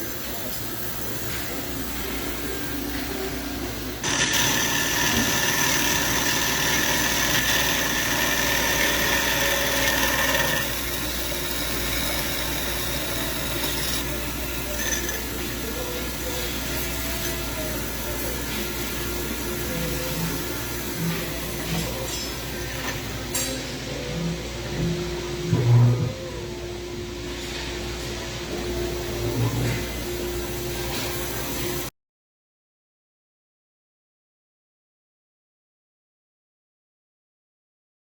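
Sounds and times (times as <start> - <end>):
loud whining machine tones: 4.0 - 15.9
band saw humming: 4.0 - 23.1.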